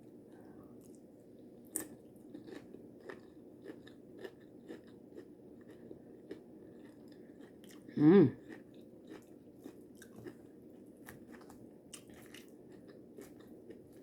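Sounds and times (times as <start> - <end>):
person chewing crunchy chips: 1.7 - 14.0.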